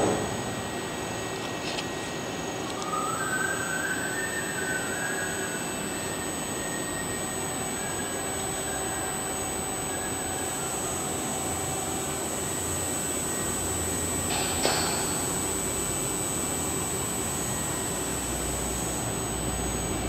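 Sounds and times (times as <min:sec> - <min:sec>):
cnc router running: 0:00.0 - 0:20.0
thin high whine: 0:00.0 - 0:20.0.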